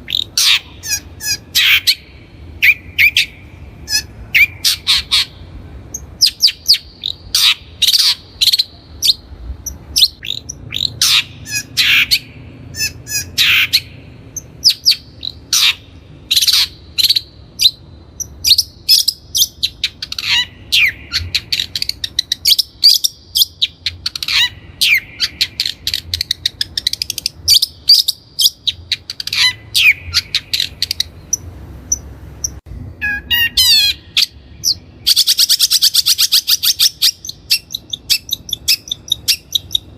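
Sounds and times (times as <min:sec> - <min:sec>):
bird singing harsh notes: 0:00.0 - 0:39.9.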